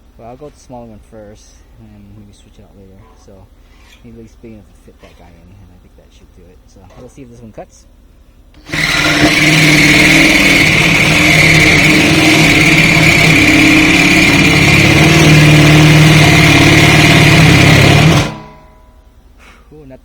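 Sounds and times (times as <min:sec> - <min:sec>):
power drill hole saw grinding steel: 0:08.6 - 0:18.7.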